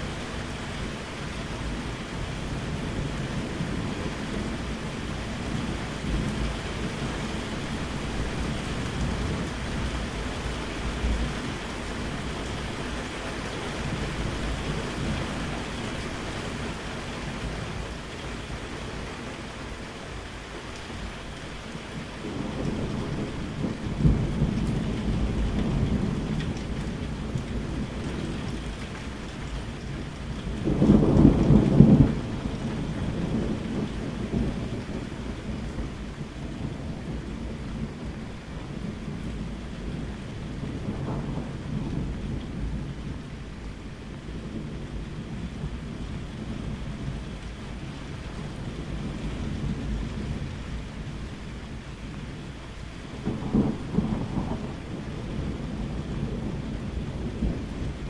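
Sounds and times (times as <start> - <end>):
thunder rumbling: 0.0 - 19.9, 21.3 - 58.0
steady rain: 0.0 - 58.0
loud thunderclap: 30.5 - 35.9, 38.8 - 43.1, 53.1 - 58.0.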